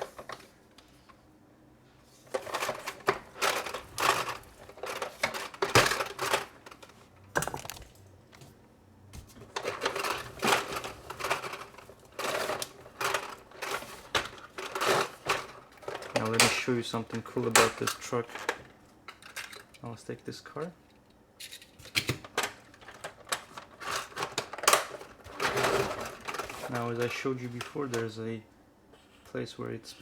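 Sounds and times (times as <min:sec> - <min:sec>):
plastic toys clicking and rattling: 0:02.3 - 0:08.0, 0:09.5 - 0:19.9, 0:21.4 - 0:28.0.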